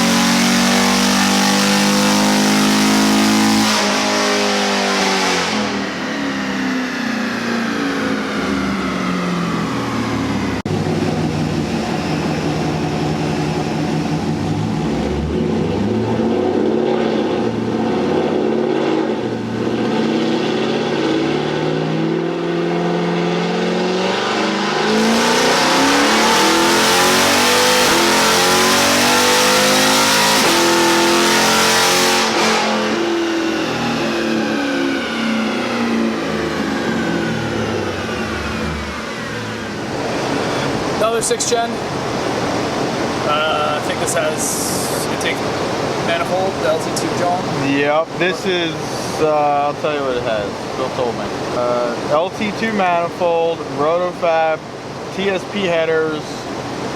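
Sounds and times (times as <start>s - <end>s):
car engine revving: 0.0s - 56.9s.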